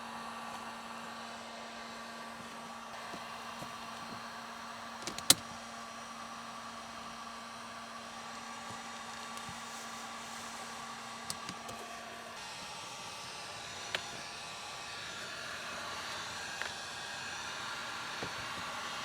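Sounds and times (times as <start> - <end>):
electric motor hum: 0.2 - 19.0
hiss: 8.3 - 19.0.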